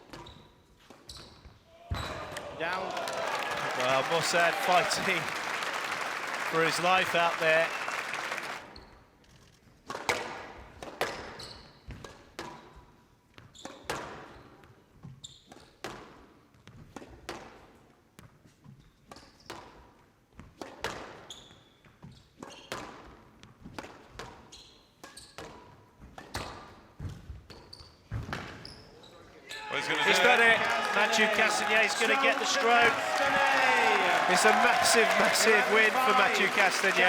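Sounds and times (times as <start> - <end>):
shoe squeaks: 0.0 - 1.6, 24.5 - 25.4.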